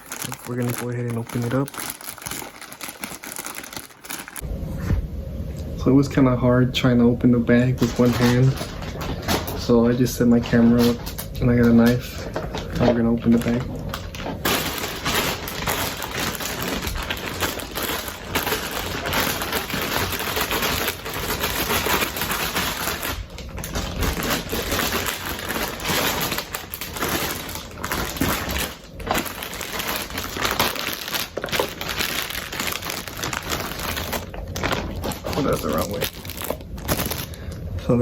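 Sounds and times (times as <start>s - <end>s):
knife cutting plastic bag: 0.0s - 4.4s, 13.0s - 37.4s
plastic bag crinkling: 0.0s - 4.4s, 7.5s - 37.6s.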